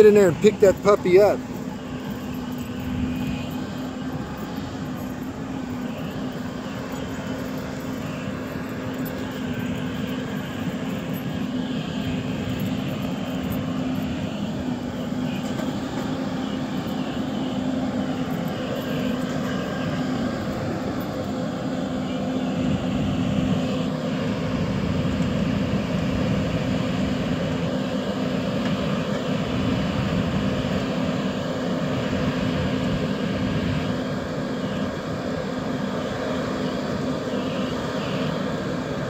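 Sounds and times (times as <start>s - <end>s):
airboat engine droning: 0.0s - 39.0s.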